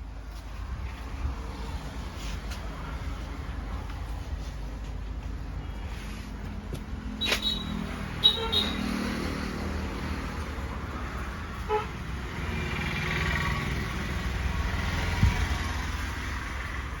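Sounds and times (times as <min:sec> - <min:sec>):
road traffic: 0:00.0 - 0:17.0
short horn toot: 0:07.2 - 0:08.9.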